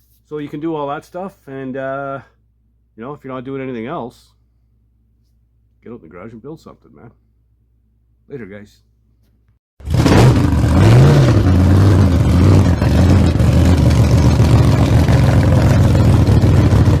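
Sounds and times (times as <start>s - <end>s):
vehicle engine revving: 9.8s - 17.0s.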